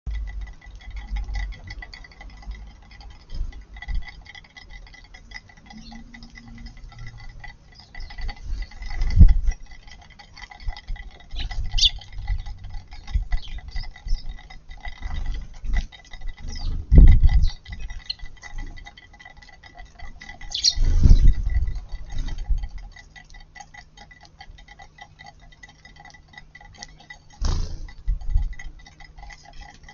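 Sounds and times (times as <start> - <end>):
birds pecking at food: 0.1 - 29.9
dull low thumps: 16.2 - 18.0.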